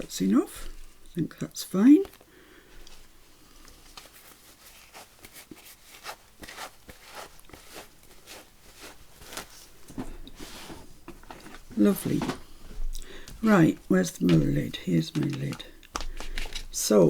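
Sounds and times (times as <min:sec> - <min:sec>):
paper rustling: 0:02.9 - 0:16.9
stamping supplies clicking and tapping: 0:14.2 - 0:16.8.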